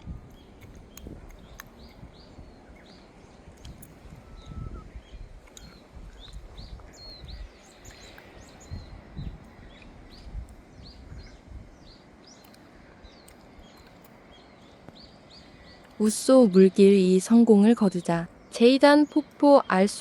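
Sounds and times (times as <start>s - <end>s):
low gusting rumble: 0.0s - 20.0s
small birds chirping: 0.0s - 20.0s.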